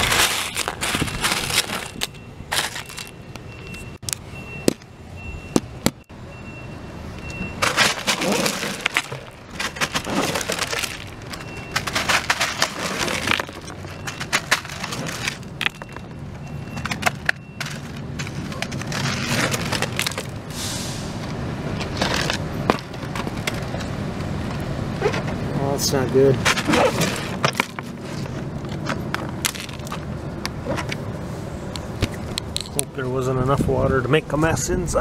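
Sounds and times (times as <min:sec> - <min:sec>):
debris crunching on roof: 0:00.0 - 0:03.1, 0:07.6 - 0:16.1, 0:16.8 - 0:20.4.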